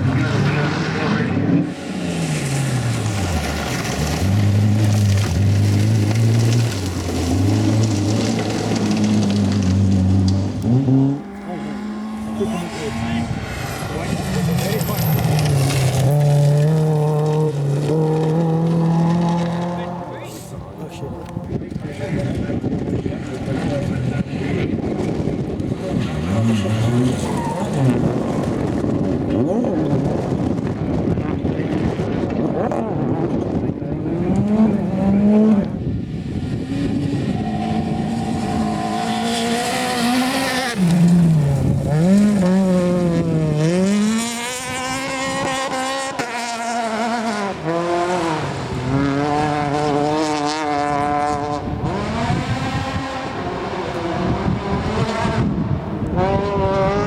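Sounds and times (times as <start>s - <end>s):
rally car engines at full throttle: 0.0s - 57.0s.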